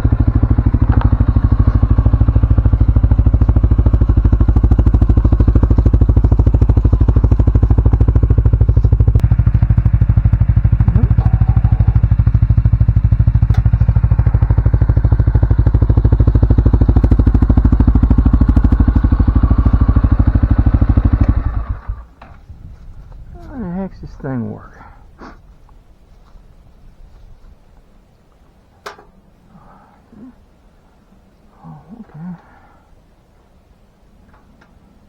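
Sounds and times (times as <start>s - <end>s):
atv engine running: 0.0s - 24.7s.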